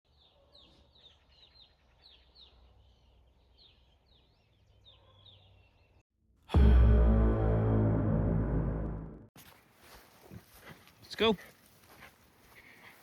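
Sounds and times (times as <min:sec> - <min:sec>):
bird chirping: 0:00.1 - 0:06.0
loud music: 0:06.5 - 0:09.3.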